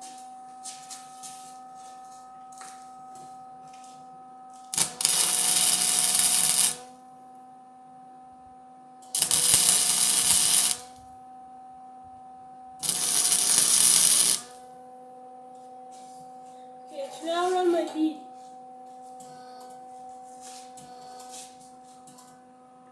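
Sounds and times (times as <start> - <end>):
steady electrical hum: 4.6 - 22.3
welding arc crackling: 4.7 - 6.9, 9.2 - 11.0, 12.8 - 14.6.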